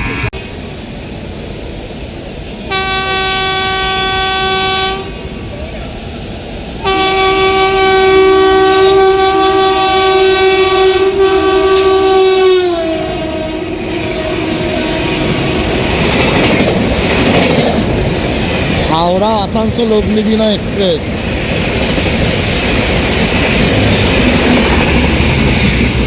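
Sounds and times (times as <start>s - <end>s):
train passing with wheel clatter: 0.0s - 26.0s
two-note locomotive horn: 2.7s - 5.3s, 6.8s - 15.7s.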